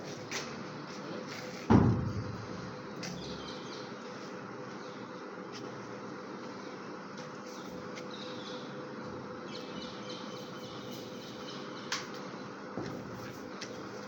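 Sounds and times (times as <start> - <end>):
birds chirping: 2.8 - 5.4, 6.4 - 12.6.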